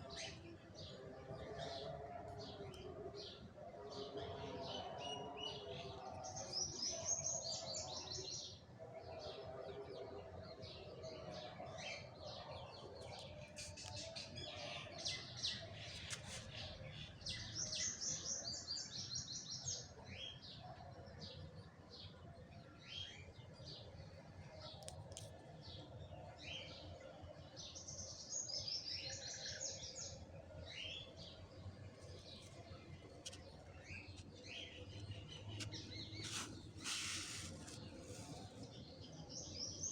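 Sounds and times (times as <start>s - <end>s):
birds chirping: 27.7s - 39.9s.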